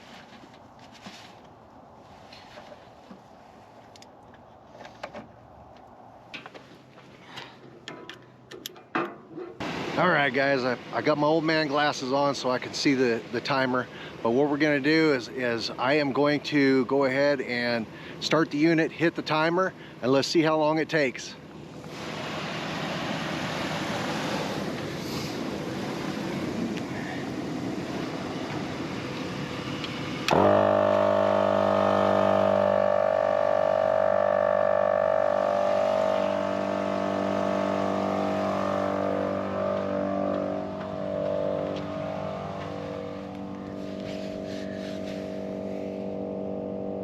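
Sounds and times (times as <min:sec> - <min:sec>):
air compressor motor hum: 0:21.5 - 0:47.0.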